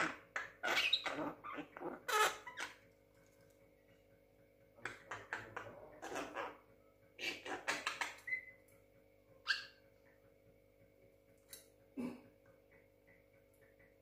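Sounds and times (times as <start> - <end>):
bird harsh calls: 0.0 - 2.8, 4.8 - 8.6.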